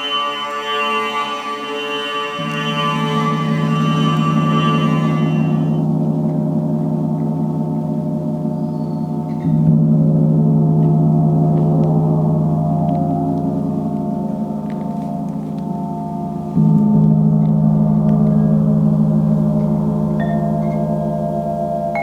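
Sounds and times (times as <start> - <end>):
gong ringing: 0.0 - 6.9.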